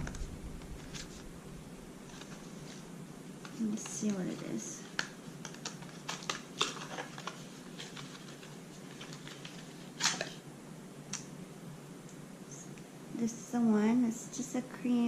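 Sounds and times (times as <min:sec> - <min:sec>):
package rustling: 0:02.0 - 0:10.4.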